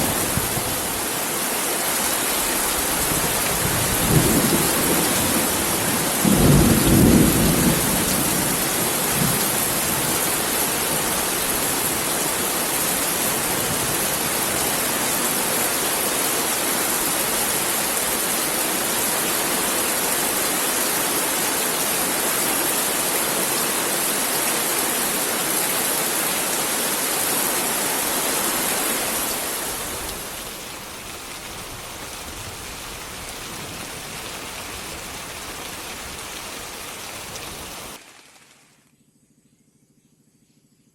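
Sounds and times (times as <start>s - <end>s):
heavy rain falling: 0.0s - 38.7s
low rumble of thunder: 3.0s - 11.9s.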